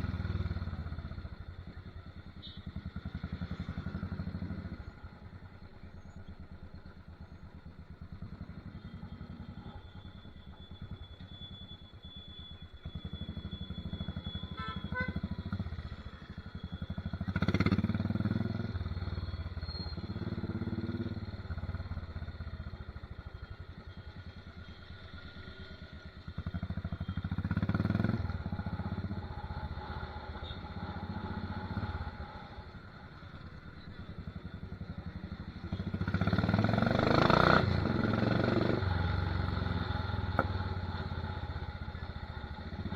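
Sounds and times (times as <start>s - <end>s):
motorcycle engine thumping: 40.3s - 40.6s.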